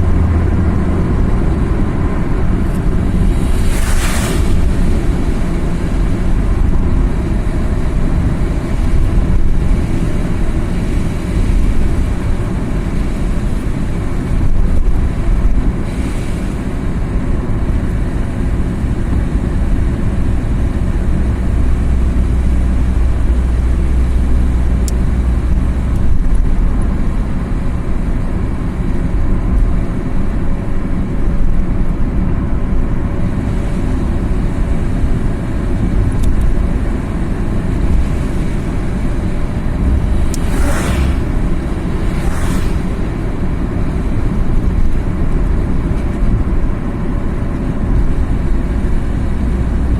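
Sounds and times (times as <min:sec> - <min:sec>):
car engine and tyre rumble: 0:00.0 - 0:49.9.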